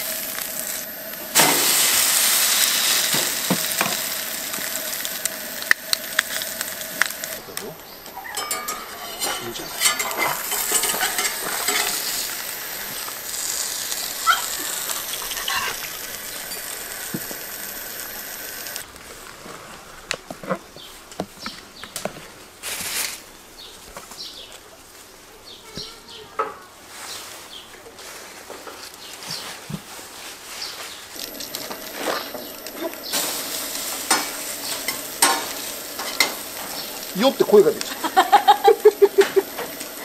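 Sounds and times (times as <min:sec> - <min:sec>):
sandwich sizzling in a frying pan: 0:00.0 - 0:18.9, 0:30.6 - 0:40.0
metal spatula scraping a pan: 0:08.3 - 0:12.4.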